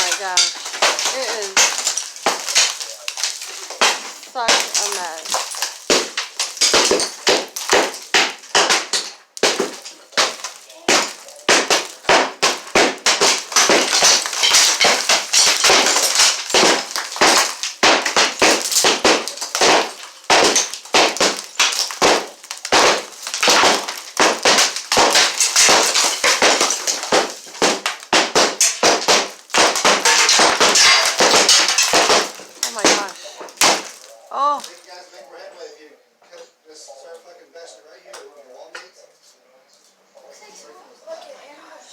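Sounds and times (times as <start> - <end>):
falling debris crashing: 0.0 - 35.0
wall cracking during demolition: 0.0 - 35.0.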